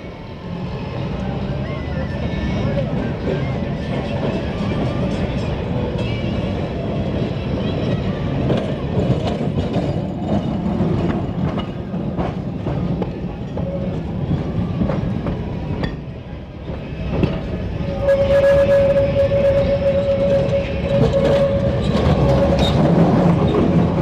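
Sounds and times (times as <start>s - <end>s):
electric tram rumbling: 0.0s - 24.0s
wheels clattering over rails: 2.2s - 24.0s
loud steady tone: 17.8s - 23.3s.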